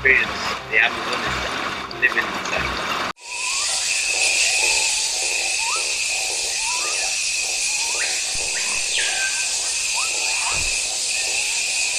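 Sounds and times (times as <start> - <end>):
dense insect hiss: 3.2 - 11.9
falling whistle: 3.2 - 11.9
high-pitched insect whine: 3.2 - 11.9
short rising chirps: 3.2 - 11.9.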